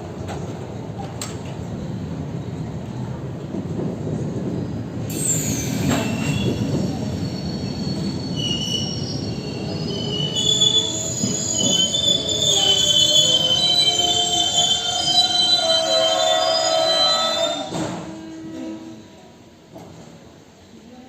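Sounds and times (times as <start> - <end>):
train coaches rumbling on rails: 0.0 - 21.0
high wheel squeals: 5.1 - 19.0.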